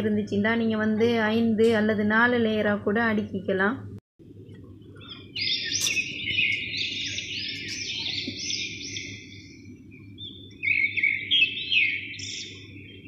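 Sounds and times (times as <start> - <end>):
steady low hum: 0.0 - 13.0
birds chirping: 4.4 - 13.0.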